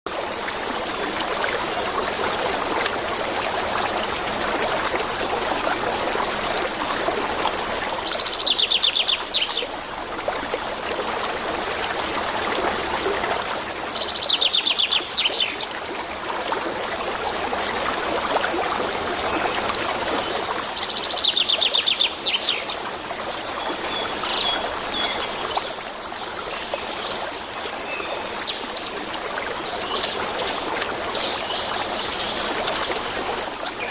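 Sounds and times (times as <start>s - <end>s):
stream water running: 0.1s - 33.9s.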